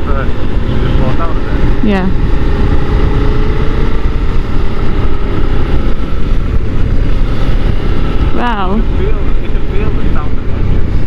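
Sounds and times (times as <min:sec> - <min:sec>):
motorcycle engine running: 0:00.0 - 0:11.0
wind rush on microphone: 0:00.0 - 0:11.0.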